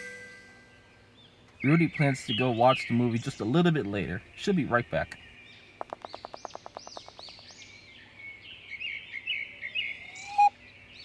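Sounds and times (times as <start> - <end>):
birds chirping and singing: 0.6 - 11.0
fast run of ticks: 5.8 - 7.5
short rising bird call: 10.0 - 10.5.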